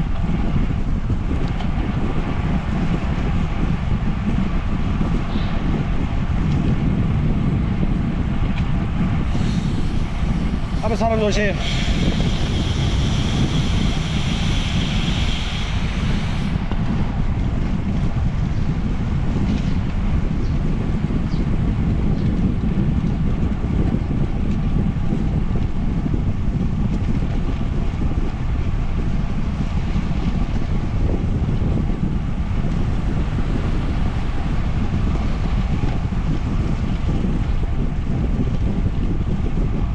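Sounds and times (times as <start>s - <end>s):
wind rushing over microphone: 0.0s - 39.9s
high hiss: 9.3s - 16.6s.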